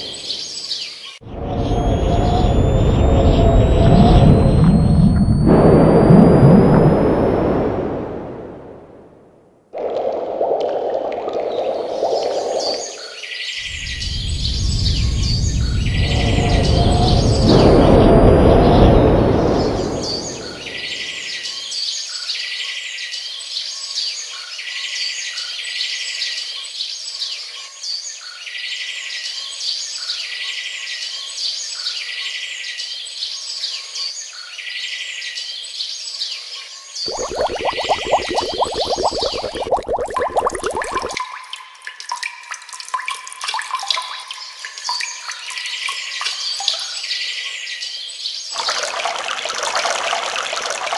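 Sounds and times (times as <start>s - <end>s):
loud rush of noise: 1.3s - 9.2s, 13.7s - 21.4s.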